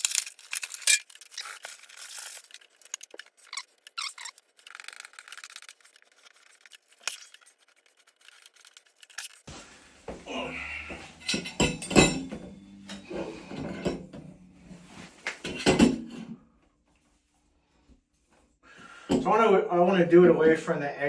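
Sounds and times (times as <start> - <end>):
tools clicking and scraping: 0.0 - 9.5.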